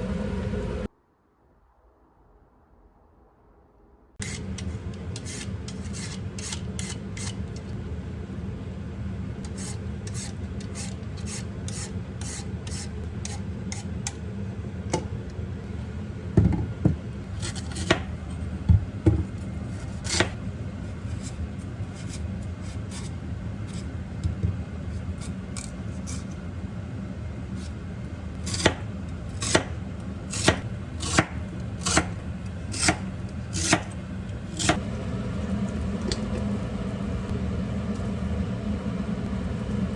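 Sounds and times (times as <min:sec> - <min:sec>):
low hum: 0:00.0 - 0:10.0, 0:29.8 - 0:39.9
knife chopping on cutting board: 0:28.4 - 0:34.0.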